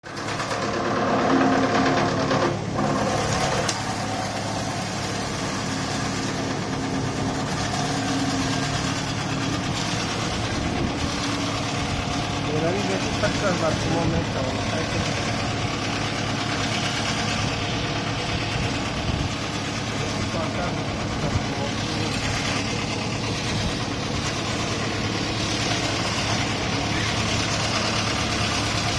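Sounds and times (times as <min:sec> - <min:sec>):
wood shaving machine humming: 0:00.0 - 0:28.9.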